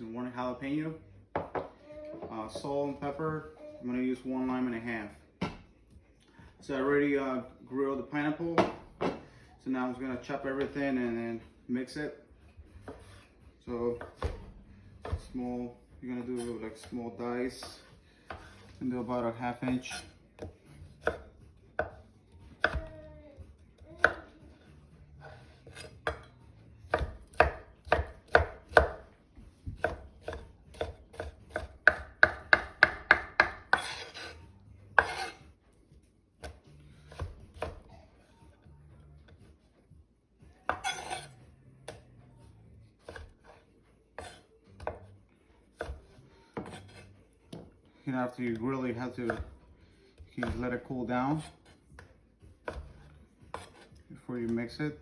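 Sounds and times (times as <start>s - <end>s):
knife chopping on cutting board: 12.8s - 13.2s, 14.0s - 15.4s, 16.4s - 18.8s, 19.6s - 22.9s, 24.0s - 24.3s, 25.2s - 26.3s, 26.9s - 35.4s, 36.4s - 37.9s, 40.7s - 42.1s, 43.0s - 43.6s, 44.2s - 45.1s, 45.7s - 47.7s, 48.5s - 49.6s, 50.2s - 54.5s
knife scraping cutting board: 12.8s - 13.4s, 17.6s - 19.0s, 19.6s - 21.2s, 25.2s - 26.3s, 33.6s - 35.5s, 40.7s - 41.4s, 43.0s - 45.0s, 45.8s - 47.2s, 52.6s - 54.0s.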